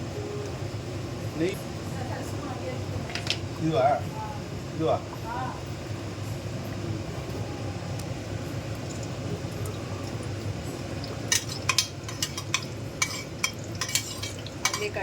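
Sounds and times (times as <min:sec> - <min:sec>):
steady low hum: 0:00.0 - 0:15.0
metal spoon scraping a pot: 0:11.3 - 0:15.0.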